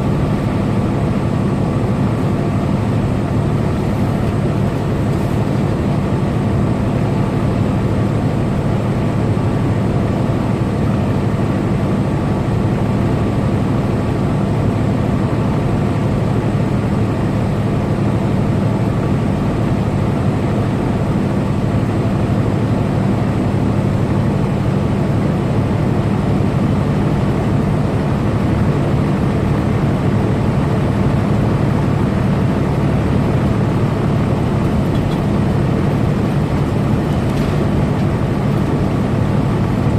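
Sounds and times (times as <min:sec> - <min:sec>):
road and tyre noise: 0:00.0 - 0:39.9
truck engine droning: 0:00.0 - 0:39.9.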